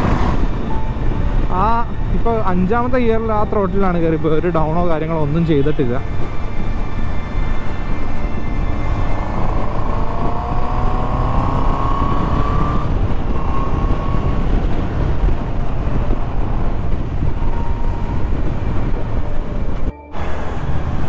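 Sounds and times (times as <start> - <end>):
wind rush on microphone: 0.0 - 5.3, 6.0 - 21.0
motorcycle engine pulling hard: 8.9 - 17.2.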